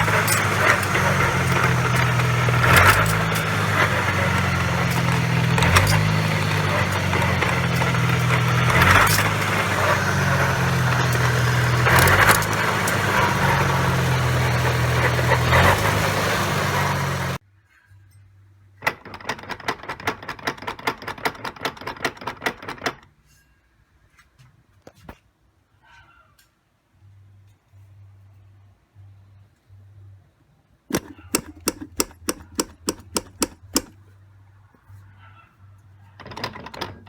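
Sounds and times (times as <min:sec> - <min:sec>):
car driving noise: 0:00.0 - 0:17.4
drivetrain rumble: 0:00.0 - 0:17.4
rapid even clicks: 0:00.0 - 0:17.4, 0:30.9 - 0:34.0.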